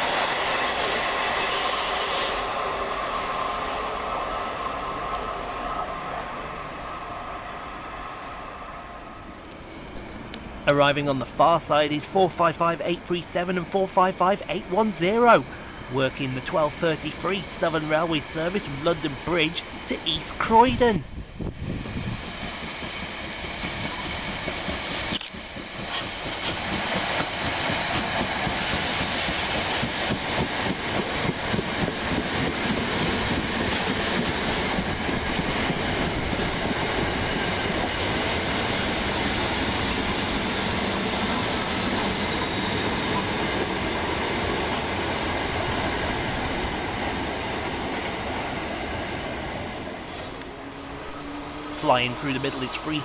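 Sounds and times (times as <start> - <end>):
electric train running: 21.4 - 53.0.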